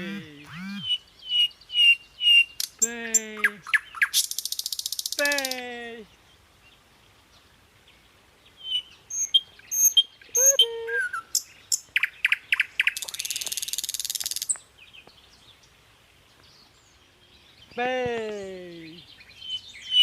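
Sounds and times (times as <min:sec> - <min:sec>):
buzzy bird trill: 0:00.0 - 0:01.0, 0:09.1 - 0:11.2
birds chirping: 0:00.0 - 0:20.0.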